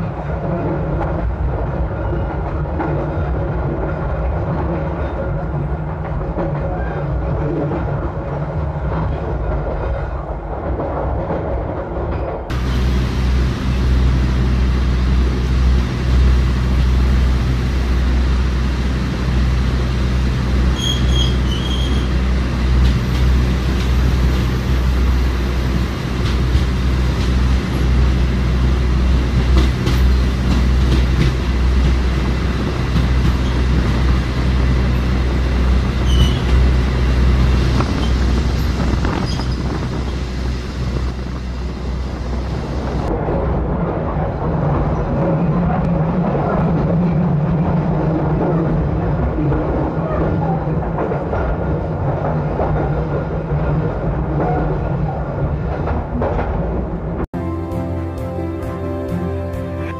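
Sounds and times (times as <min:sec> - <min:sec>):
train rumbling in a tunnel: 0:00.0 - 0:59.9
wheels squealing: 0:20.7 - 0:22.2, 0:35.9 - 0:36.8, 0:37.6 - 0:40.2.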